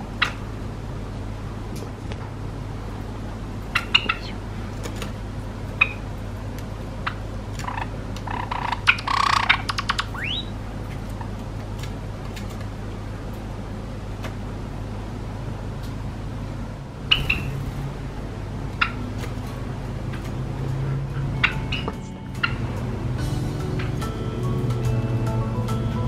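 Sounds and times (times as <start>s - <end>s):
steady low hum: 0.0s - 26.0s
sparrow chirping: 3.8s - 4.4s, 8.3s - 10.5s, 17.1s - 17.6s.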